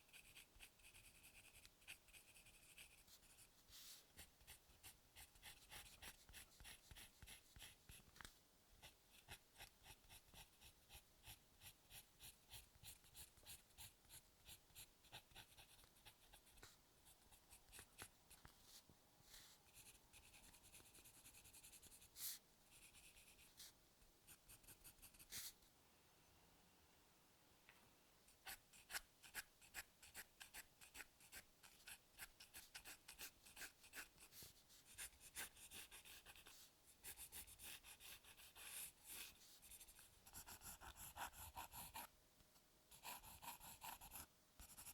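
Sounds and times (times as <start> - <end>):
pencil sketching on paper: 0.1 - 8.0, 8.8 - 18.1, 19.3 - 23.7, 24.3 - 25.5, 28.4 - 42.1, 42.9 - 44.9.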